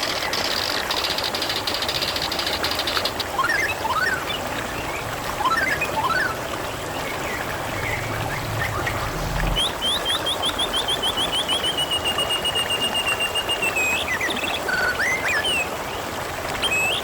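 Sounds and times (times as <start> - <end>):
trickling babbling water: 0.0 - 17.0
birds chirping: 2.6 - 12.4
low hum: 3.9 - 11.1.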